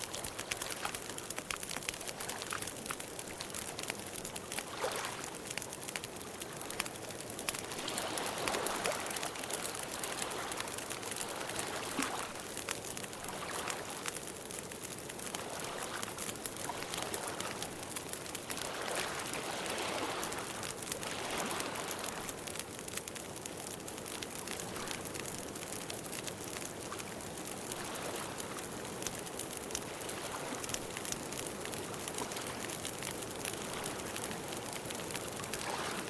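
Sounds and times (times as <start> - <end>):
campfire crackling: 0.0 - 36.0.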